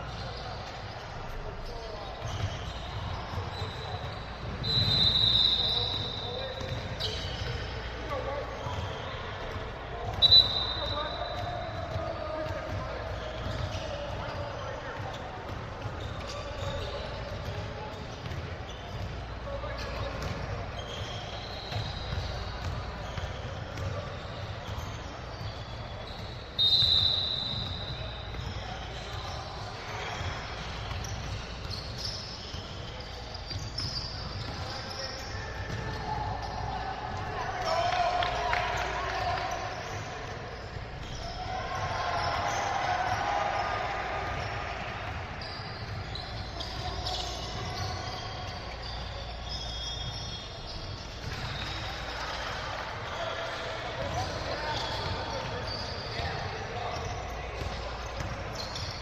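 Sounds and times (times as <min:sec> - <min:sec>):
basketball bouncing on court: 0:00.0 - 0:43.2, 0:43.8 - 0:52.4, 0:54.0 - 0:59.0
gym hall noise of play: 0:00.0 - 0:59.0
shoe squeaks: 0:00.0 - 0:59.0
shrill referee whistle: 0:02.0 - 0:07.8, 0:08.6 - 0:12.0, 0:19.8 - 0:36.9, 0:37.6 - 0:52.2, 0:54.0 - 0:59.0.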